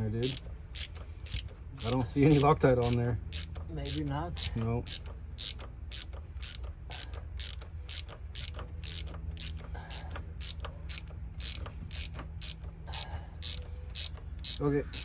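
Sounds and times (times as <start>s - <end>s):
ratchet wrench clicking: 0.2s - 15.0s.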